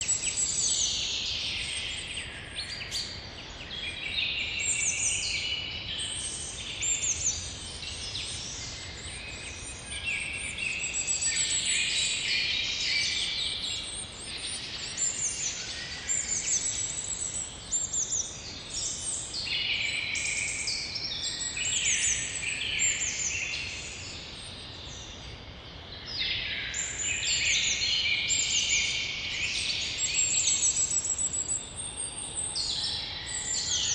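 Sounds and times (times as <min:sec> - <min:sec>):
birds chirping and trilling: 0:00.0 - 0:33.9
faint background hiss: 0:00.0 - 0:33.9.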